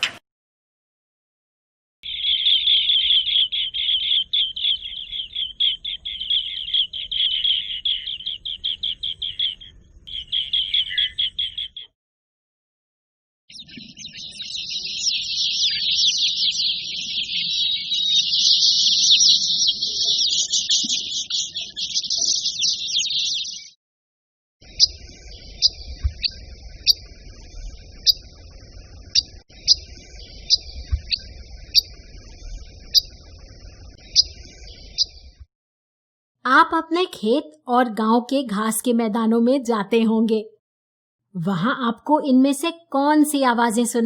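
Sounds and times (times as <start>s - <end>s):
bird chattering: 2.0s - 11.9s, 13.5s - 23.7s, 24.6s - 35.2s
short high bird chirps: 2.0s - 11.9s, 13.5s - 23.8s, 24.6s - 35.4s.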